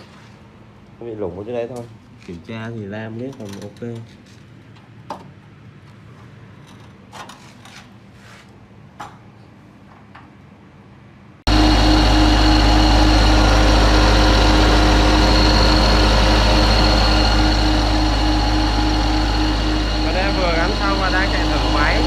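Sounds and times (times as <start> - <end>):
diesel generator running: 11.5 - 22.0.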